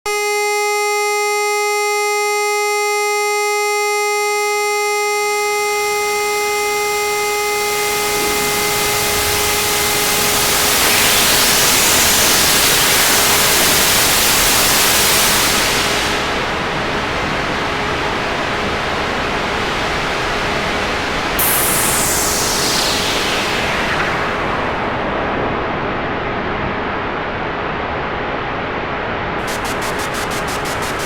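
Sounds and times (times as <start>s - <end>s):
buzzy electronic tone: 0.1s - 16.8s, 21.2s - 25.2s, 29.4s - 31.0s
white noise hiss: 7.7s - 19.2s, 20.3s - 25.4s, 29.4s - 31.0s.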